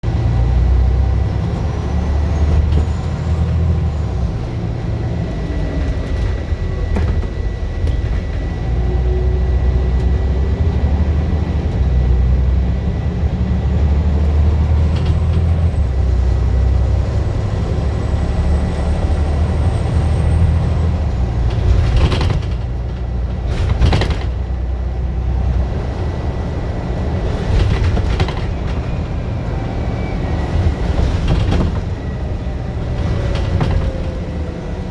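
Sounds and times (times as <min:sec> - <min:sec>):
bus engine running hard: 0:00.0 - 0:34.9
loud clattering knocks: 0:21.4 - 0:24.5.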